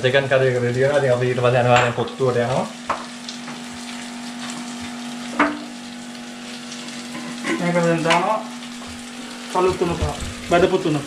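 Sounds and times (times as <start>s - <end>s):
curry sizzling in a pan: 0.0s - 11.0s.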